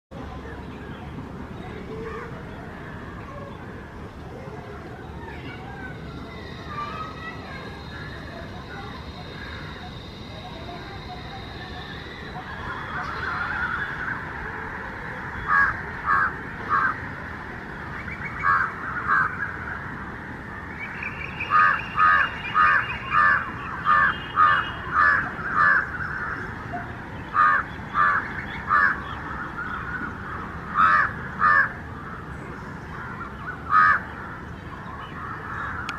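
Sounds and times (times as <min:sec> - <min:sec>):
bird harsh calls: 0:15.3 - 0:17.0, 0:17.9 - 0:19.7, 0:20.7 - 0:35.9.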